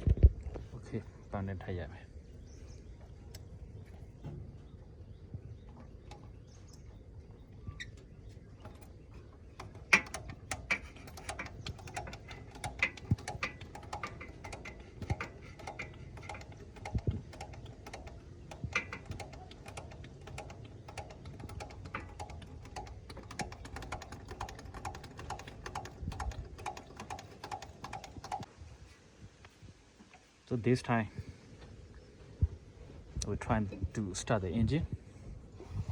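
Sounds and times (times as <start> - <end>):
hand tools clicking on metal: 7.6 - 28.5.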